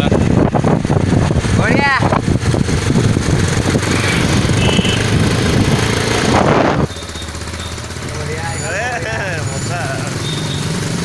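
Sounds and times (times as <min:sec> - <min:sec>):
wind rushing over microphone: 0:00.0 - 0:06.9
motorcycle engine running: 0:00.0 - 0:11.0.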